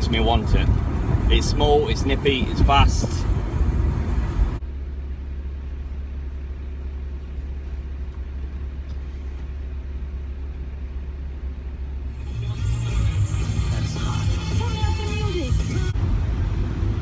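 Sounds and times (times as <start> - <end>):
car engine low drone: 0.0 - 17.0
road noise: 0.0 - 17.0
music: 12.2 - 16.0.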